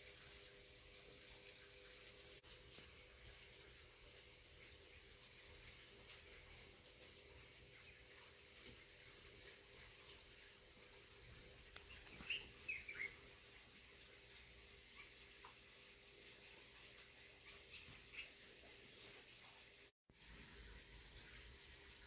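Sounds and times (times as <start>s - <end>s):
bird chirping: 1.4s - 2.4s, 5.6s - 6.9s, 8.9s - 10.3s, 11.8s - 13.2s, 16.1s - 19.9s.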